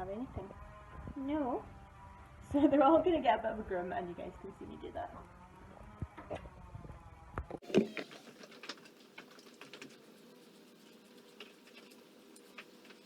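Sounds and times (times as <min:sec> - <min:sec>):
brush scratching through pony coat: 0:07.9 - 0:13.0.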